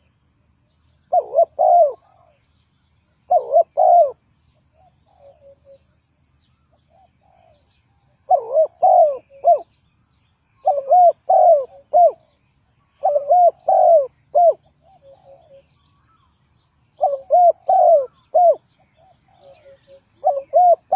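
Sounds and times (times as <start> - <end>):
dove cooing: 1.1 - 2.4, 3.3 - 5.9, 6.9 - 9.7, 10.6 - 15.8, 17.0 - 20.9.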